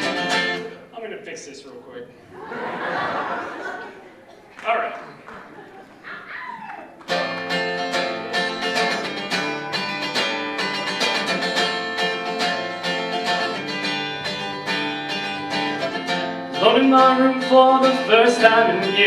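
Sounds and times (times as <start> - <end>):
acoustic guitar picking: 0.0 - 1.0, 7.0 - 19.0.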